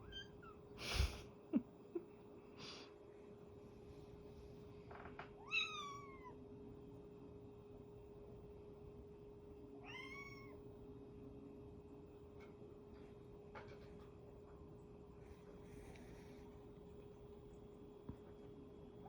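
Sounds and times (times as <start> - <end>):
young cat meowing: 5.4 - 6.4, 9.8 - 10.6.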